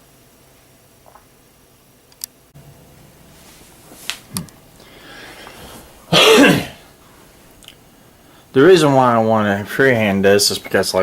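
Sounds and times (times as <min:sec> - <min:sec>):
soft rustle: 0:03.3 - 0:04.3.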